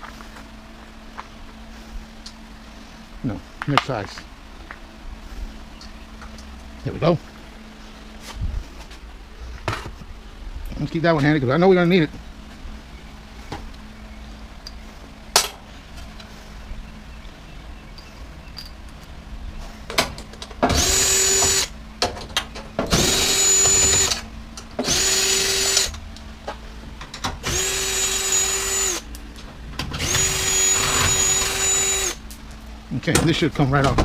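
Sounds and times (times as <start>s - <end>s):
power drill spinning out screws: 20.7s - 21.7s, 22.9s - 24.2s, 24.8s - 25.9s, 27.4s - 29.0s, 29.9s - 32.2s.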